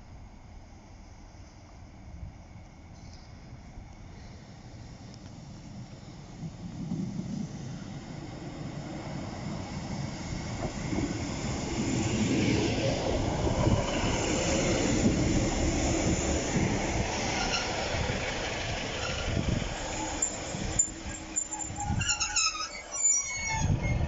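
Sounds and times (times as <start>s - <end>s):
diesel train passing: 0.1s - 24.0s
faint high wheel squeal: 17.2s - 18.0s, 18.9s - 24.0s.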